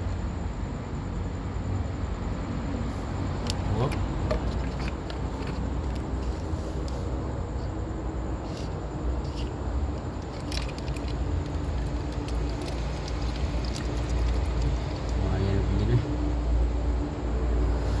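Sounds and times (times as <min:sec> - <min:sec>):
low mechanical rumble: 0:00.0 - 0:18.0.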